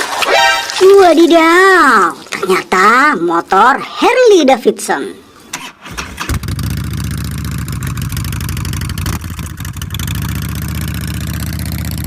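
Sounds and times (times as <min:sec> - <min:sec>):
motorcycle engine idling: 0:06.0 - 0:12.0.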